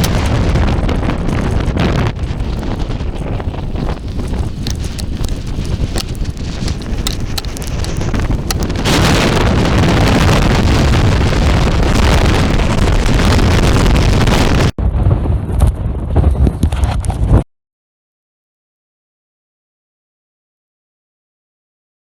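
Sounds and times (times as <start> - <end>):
wind buffeting microphone: 0.0 - 17.4.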